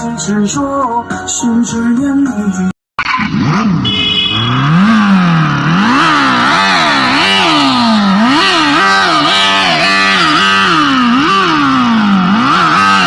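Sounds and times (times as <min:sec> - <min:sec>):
simulated motorcycle engine revving: 0:03.0 - 0:13.0.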